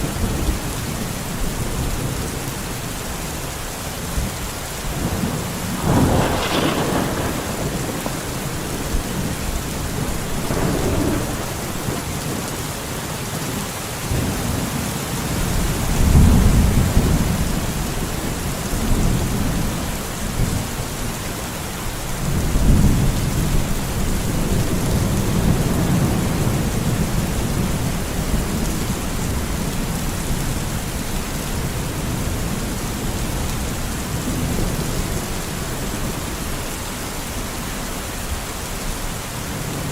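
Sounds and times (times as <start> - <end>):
steady rain: 0.0 - 39.9
rolling thunder: 4.1 - 13.0, 14.1 - 20.8.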